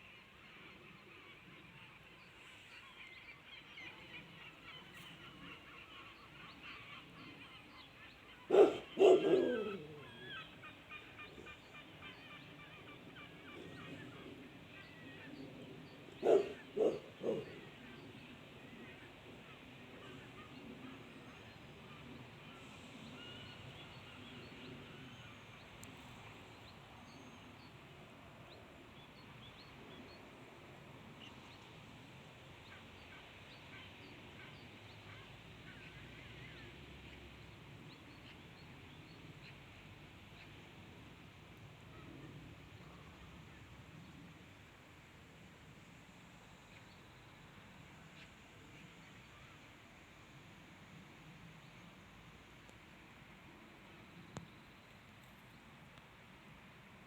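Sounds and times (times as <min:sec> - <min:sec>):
flock of birds calling: 0:08.4 - 0:11.3, 0:16.2 - 0:17.9
loud low bird cry: 0:08.5 - 0:10.5, 0:16.2 - 0:17.6.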